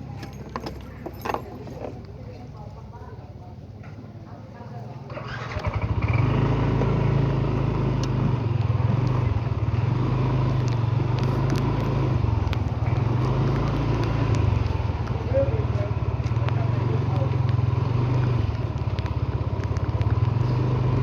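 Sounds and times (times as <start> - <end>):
vehicle engine droning: 0.0 - 4.0, 5.1 - 21.0.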